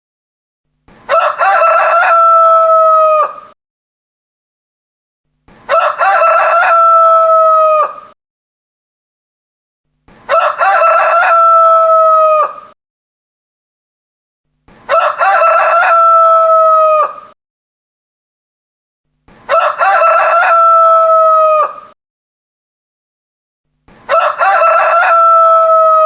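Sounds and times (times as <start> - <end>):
rooster crowing: 1.1 - 3.6, 5.7 - 8.2, 10.3 - 12.8, 14.9 - 17.4, 19.5 - 22.0, 24.1 - 26.0.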